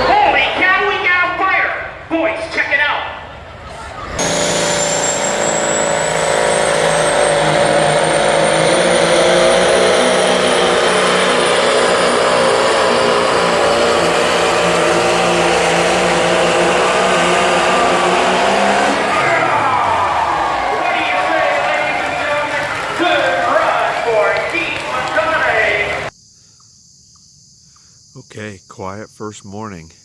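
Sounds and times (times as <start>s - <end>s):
tractor engine at full throttle: 4.0s - 26.1s.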